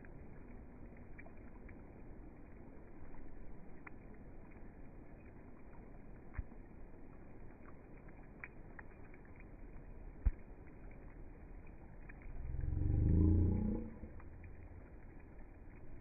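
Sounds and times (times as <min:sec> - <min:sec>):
rain falling: 0:00.0 - 0:16.0
sharp raindrop hits: 0:00.0 - 0:16.0.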